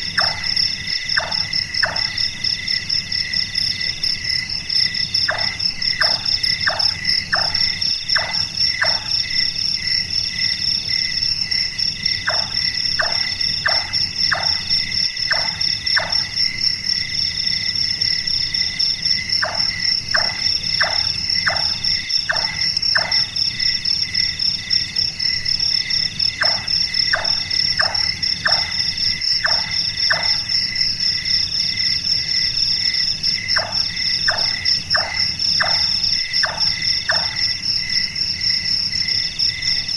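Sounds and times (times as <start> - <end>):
crickets and insects chorus: 0.0 - 39.9
nightjar chonk calls: 0.1 - 2.2.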